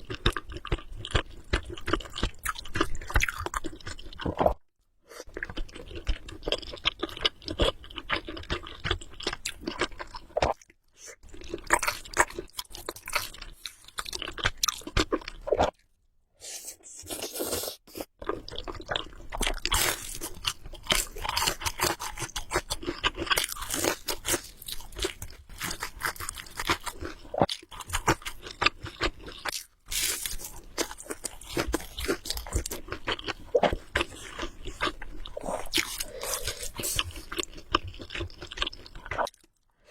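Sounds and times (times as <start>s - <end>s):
chewing noodles close up: 5.2s - 15.8s, 17.0s - 39.7s.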